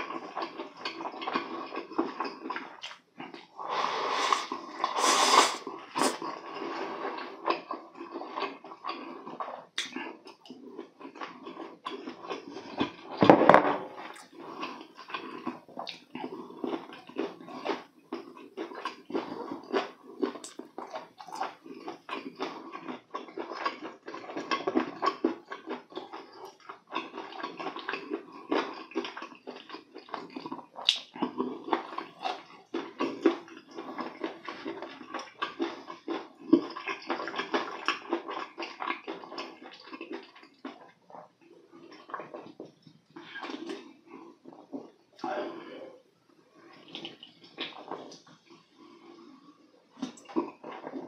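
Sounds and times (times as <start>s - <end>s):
wet chewing: 0.0s - 13.2s, 14.0s - 45.4s, 46.6s - 51.0s
thump: 13.2s - 13.9s.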